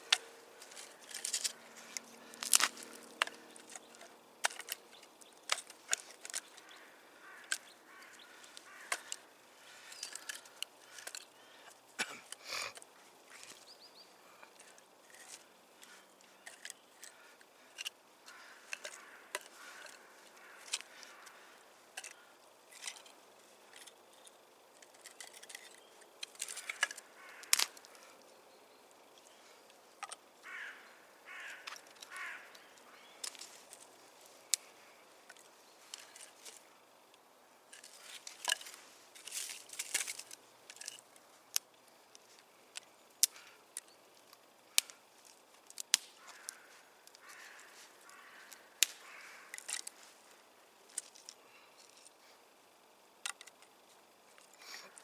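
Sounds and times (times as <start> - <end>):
twigs rustling: 0.0 - 55.0
twigs snapping: 0.1 - 11.3, 24.8 - 28.2, 30.0 - 36.6, 37.7 - 43.5, 44.2 - 50.2.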